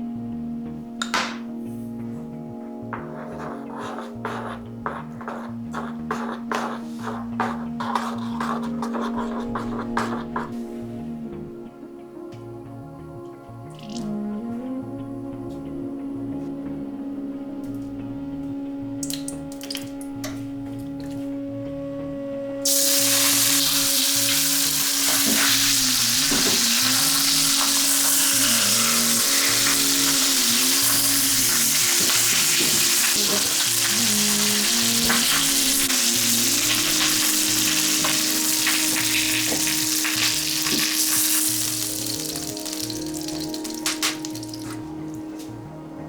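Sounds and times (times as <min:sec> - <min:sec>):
food sizzling in hot fat: 0:22.6 - 0:44.8.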